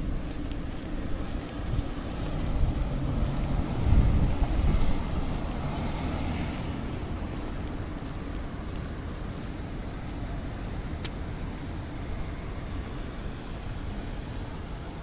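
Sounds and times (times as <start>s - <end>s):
low street hum: 0.0s - 15.0s
vehicle engine passing: 1.8s - 7.5s.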